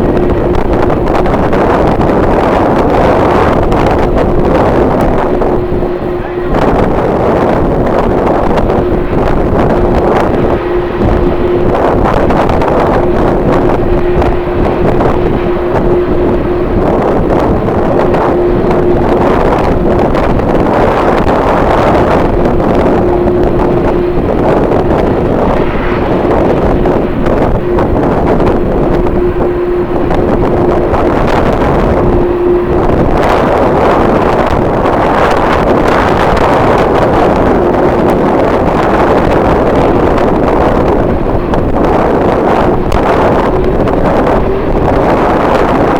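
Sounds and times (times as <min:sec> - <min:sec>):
steady hum: 0:00.0 - 0:45.9
wind buffeting microphone: 0:00.0 - 0:45.9.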